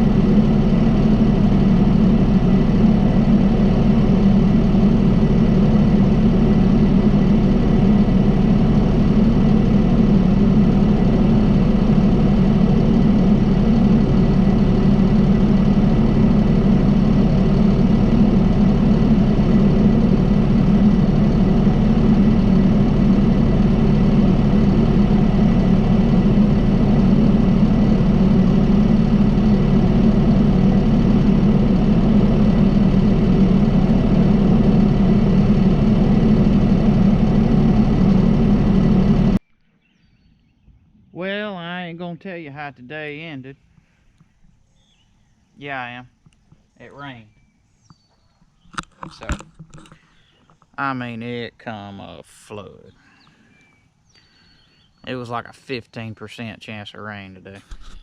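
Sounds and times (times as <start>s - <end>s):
tractor diesel engine running: 0.0s - 39.4s, 45.6s - 58.0s.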